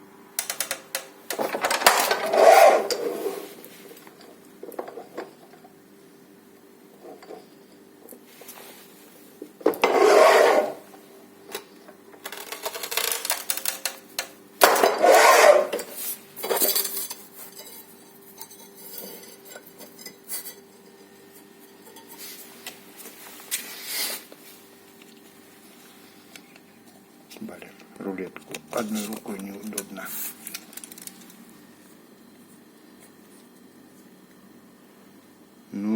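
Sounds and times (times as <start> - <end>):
tile cutter scraping strokes: 2.1 - 3.6, 9.8 - 10.9, 14.7 - 16.0
clinks of ceramic and metal: 16.4 - 20.7.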